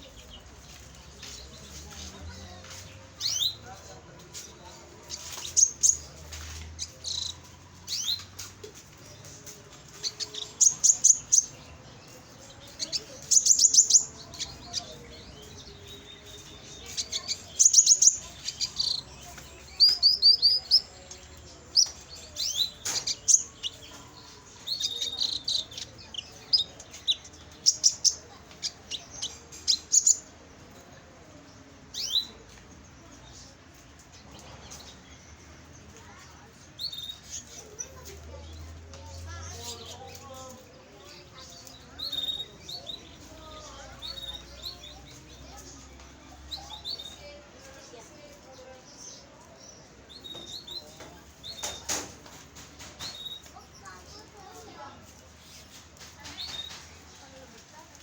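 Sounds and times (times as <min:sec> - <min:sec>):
canary singing: 0:00.0 - 0:32.6, 0:33.3 - 0:58.0.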